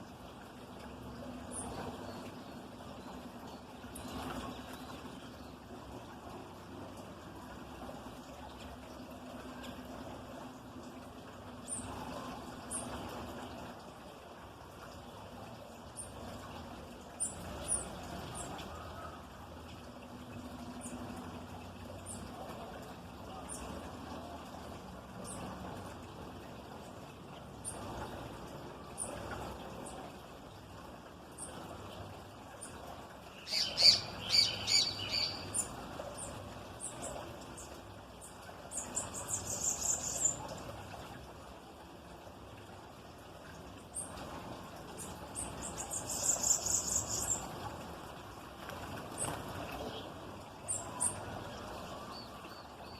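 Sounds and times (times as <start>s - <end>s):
songbirds chirping: 0.1s - 41.9s, 43.5s - 52.9s
thin high bird calls: 33.3s - 37.2s.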